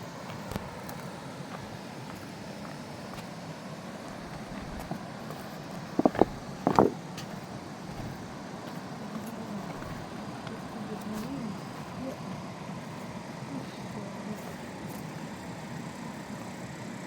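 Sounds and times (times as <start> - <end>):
sharp knocks: 6.0 - 7.0.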